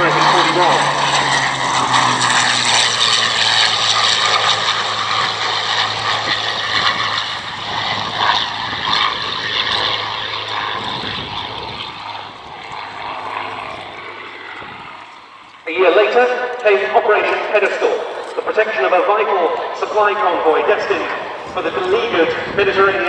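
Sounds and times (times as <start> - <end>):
propeller aircraft engine in flight: 0.0 - 23.0.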